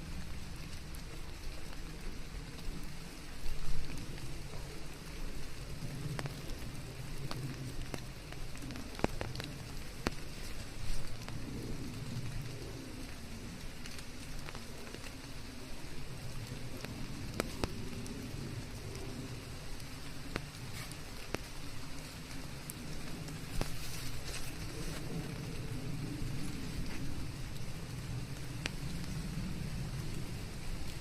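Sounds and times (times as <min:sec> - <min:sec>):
low rumble: 0:00.0 - 0:31.0
steady rain: 0:00.0 - 0:31.0.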